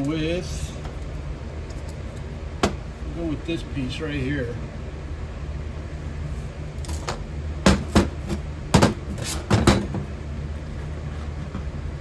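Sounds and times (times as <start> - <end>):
sharp knocks of hard objects: 7.1 - 10.0.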